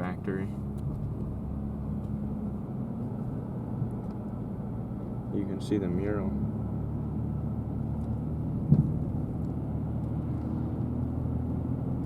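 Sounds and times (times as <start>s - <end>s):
car engine and road noise: 0.0s - 12.0s
short thump: 8.6s - 9.1s.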